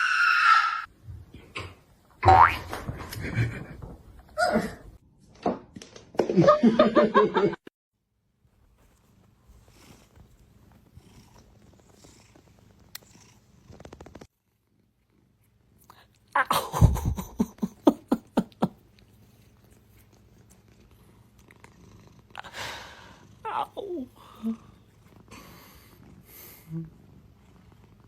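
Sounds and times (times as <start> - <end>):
cat purring: 8.8 - 15.9, 18.8 - 28.0.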